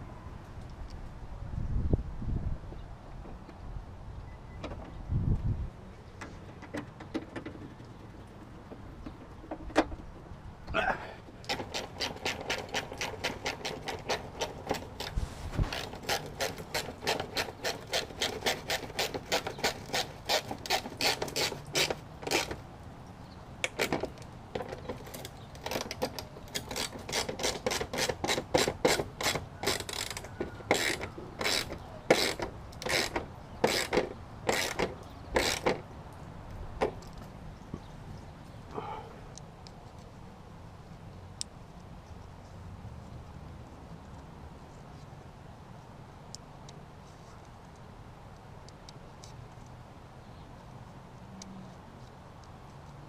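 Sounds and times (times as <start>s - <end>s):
hand ratchet clicking: 25.0s - 35.8s.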